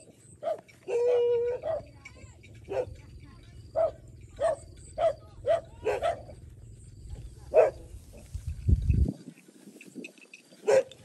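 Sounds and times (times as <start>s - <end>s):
dogs barking: 0.0s - 2.0s, 2.6s - 3.1s, 3.7s - 6.4s, 7.5s - 7.9s, 10.6s - 11.0s.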